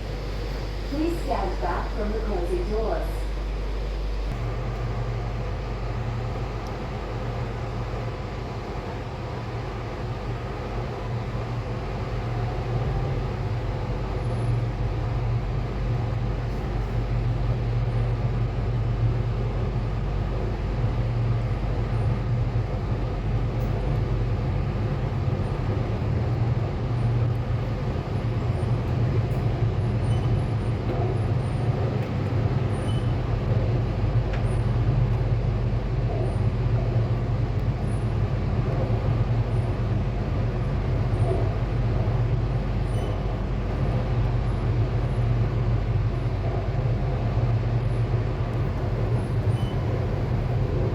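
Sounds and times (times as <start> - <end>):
train motor and wheel rumble: 0.0 - 50.9.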